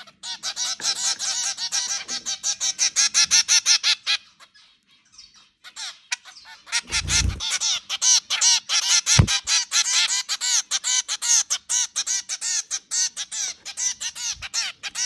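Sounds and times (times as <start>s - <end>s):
low thud: 6.9s - 7.4s, 9.2s - 9.4s.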